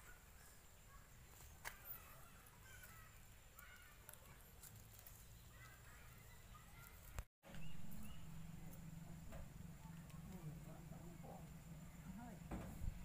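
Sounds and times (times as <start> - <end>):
low steady hum: 7.5 - 13.0.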